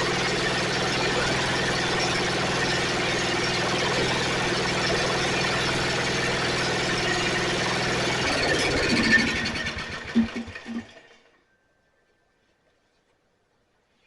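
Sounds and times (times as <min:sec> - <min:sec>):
riding mower engine running: 0:00.0 - 0:11.3.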